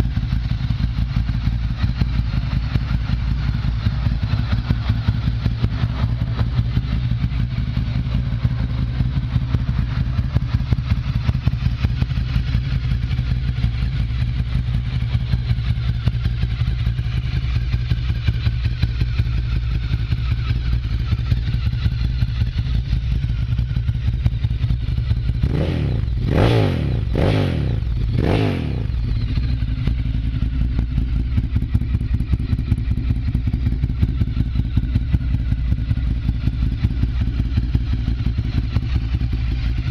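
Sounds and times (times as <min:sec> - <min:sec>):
motorcycle engine idling: 0:00.0 - 0:39.9
motorcycle engine revving: 0:00.0 - 0:39.9.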